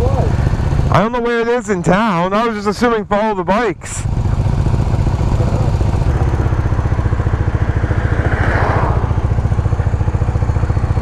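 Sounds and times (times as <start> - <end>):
motorcycle engine running: 0.0 - 11.0
brief rush of noise: 7.0 - 9.7.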